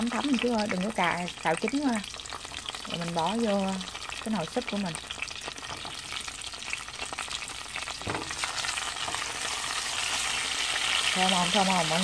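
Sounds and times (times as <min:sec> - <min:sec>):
tomatoes sizzling in oil: 0:00.0 - 0:12.0
spatula stirring in a pan: 0:05.0 - 0:12.0.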